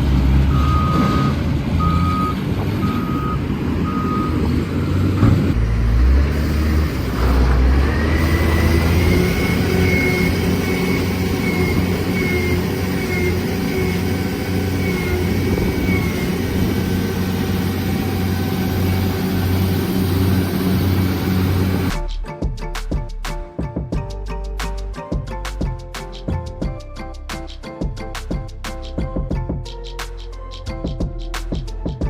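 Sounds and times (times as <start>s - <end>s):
truck engine under load: 0.0s - 21.9s.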